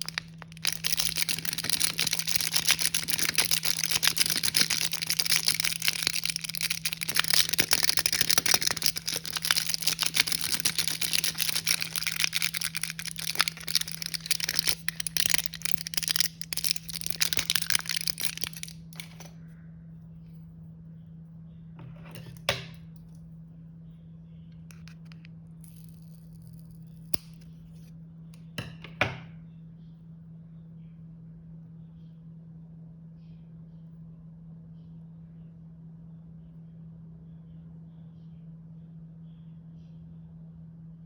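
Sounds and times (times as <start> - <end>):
plastic packaging crinkling: 0.0 - 19.4.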